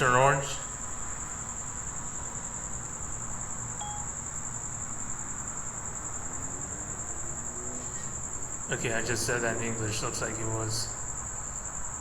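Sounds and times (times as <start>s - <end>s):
crickets trilling: 0.0s - 12.0s
faint beep: 3.8s - 4.2s.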